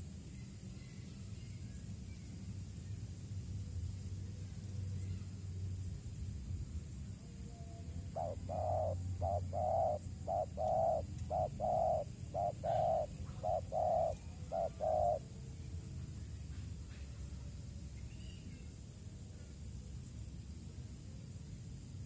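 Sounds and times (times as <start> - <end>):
dove cooing: 8.0 - 15.3.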